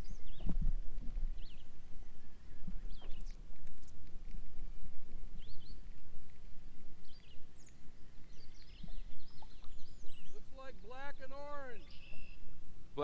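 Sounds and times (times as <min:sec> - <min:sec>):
small birds chirping: 0:00.0 - 0:00.6, 0:01.2 - 0:04.0, 0:05.0 - 0:13.0
low wind rumble on microphone: 0:00.0 - 0:10.8.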